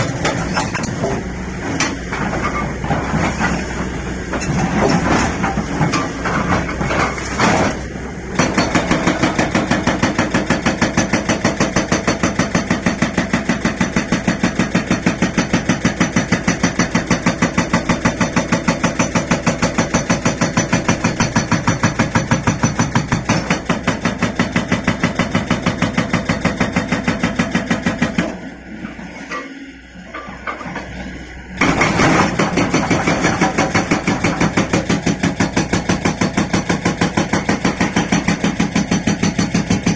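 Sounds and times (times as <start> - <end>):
diesel engine running: 0.0 - 24.0
hydraulic rock breaker hammering: 0.0 - 28.5, 31.6 - 39.9.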